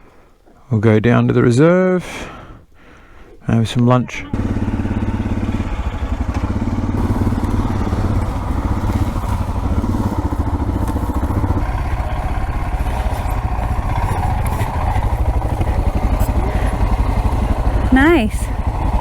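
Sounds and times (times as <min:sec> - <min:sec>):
motorcycle engine thumping: 0:04.4 - 0:19.0.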